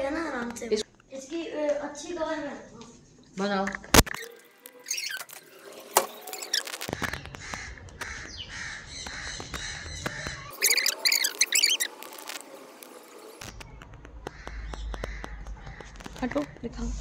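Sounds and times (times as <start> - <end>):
birds calling: 4.1 - 16.7.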